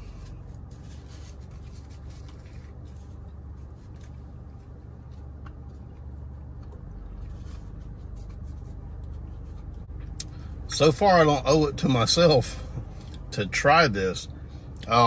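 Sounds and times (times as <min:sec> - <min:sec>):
man chewing food: 0:00.0 - 0:10.4
low hum inside car: 0:00.0 - 0:15.0.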